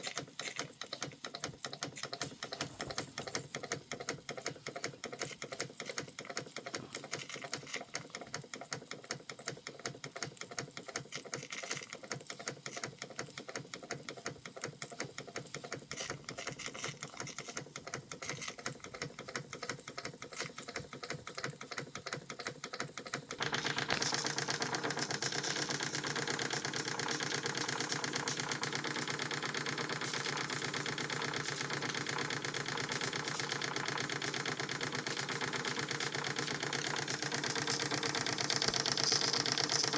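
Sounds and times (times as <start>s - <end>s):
steam engine mechanical clatter: 0.0s - 39.9s.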